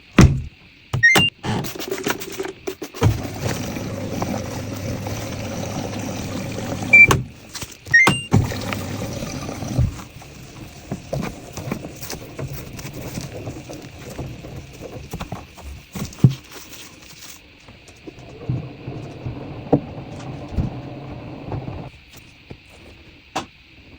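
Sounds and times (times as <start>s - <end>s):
washing machine running: 0.0s - 22.5s
electronic beeps from control panel: 1.0s - 1.4s, 6.9s - 7.2s, 7.9s - 8.4s.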